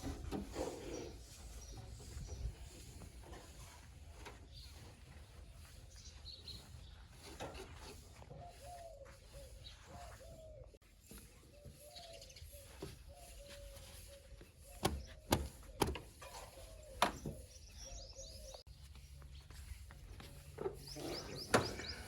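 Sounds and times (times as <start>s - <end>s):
bird calling: 8.4s - 18.7s, 20.8s - 22.0s.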